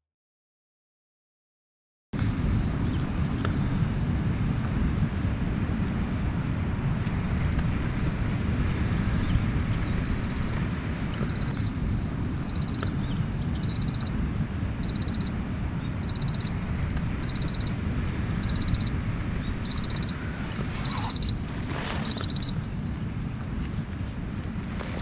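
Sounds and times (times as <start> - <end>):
electronic alarm beeping: 10.0 - 10.6, 11.2 - 11.6, 12.4 - 13.0, 13.6 - 14.2, 14.8 - 15.4, 16.0 - 16.6, 17.2 - 17.8, 18.4 - 21.4, 22.0 - 22.6.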